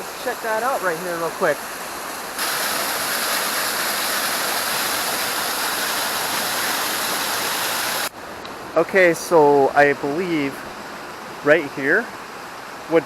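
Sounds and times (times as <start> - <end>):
waterfall rushing: 0.0 - 8.1.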